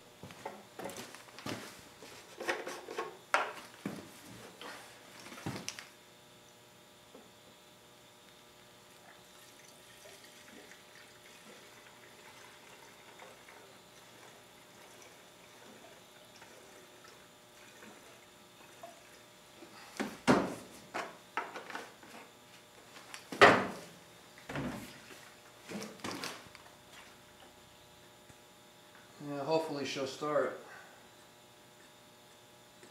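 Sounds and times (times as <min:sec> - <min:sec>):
fuel pouring into tank: 0:09.0 - 0:19.2.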